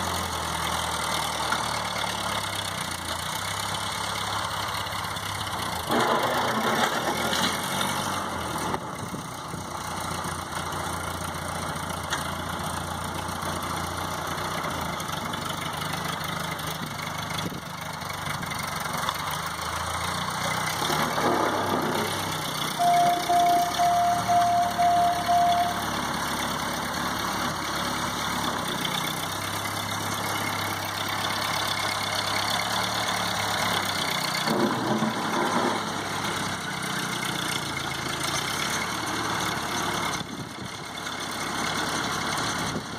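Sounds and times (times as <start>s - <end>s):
tractor engine running: 0.0s - 42.9s
short beeps: 22.8s - 26.0s.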